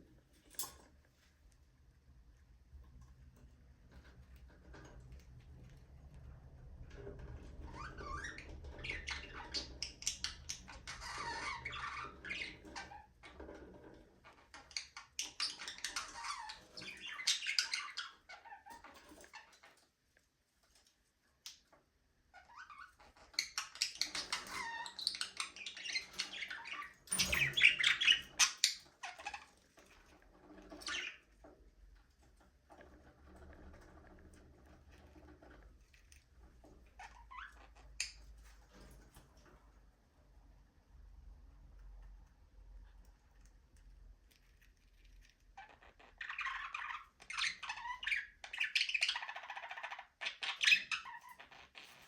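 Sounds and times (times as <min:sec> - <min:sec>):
budgerigars chirping and warbling: 0:07.8 - 0:13.1, 0:14.6 - 0:18.8, 0:22.5 - 0:29.4, 0:30.7 - 0:31.3, 0:45.6 - 0:51.6.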